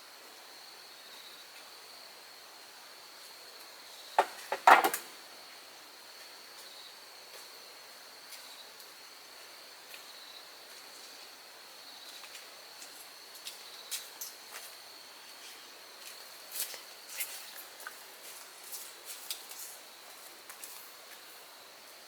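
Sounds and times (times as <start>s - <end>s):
sharp clicks and knocks: 4.2s - 5.1s.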